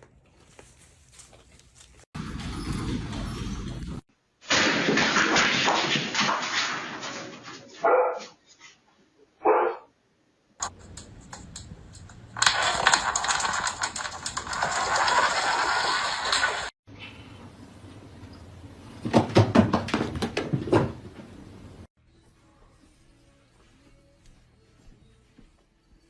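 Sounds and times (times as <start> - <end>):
rustling noise: 0.0 - 2.6, 10.6 - 16.8
dog barks: 7.8 - 8.4, 9.4 - 9.9.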